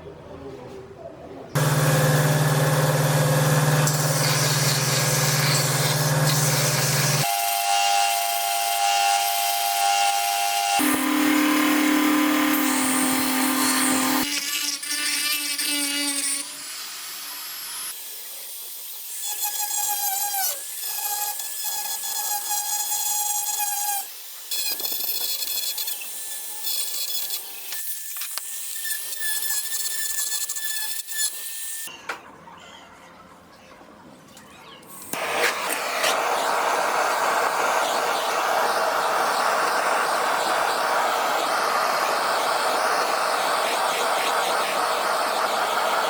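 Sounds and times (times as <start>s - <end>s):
power tools whining on steel: 1.6s - 14.3s, 35.0s - 46.0s.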